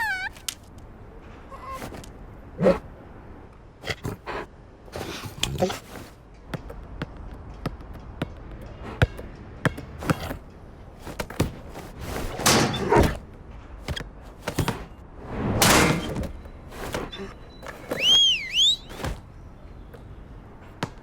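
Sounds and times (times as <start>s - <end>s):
sharp knocks and thuds: 6.5s - 15.0s.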